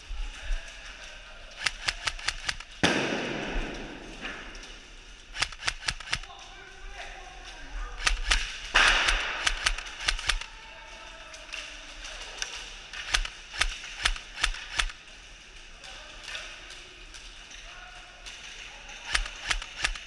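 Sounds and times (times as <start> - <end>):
airsoft gun shots: 1.6 - 4.0, 8.0 - 10.4.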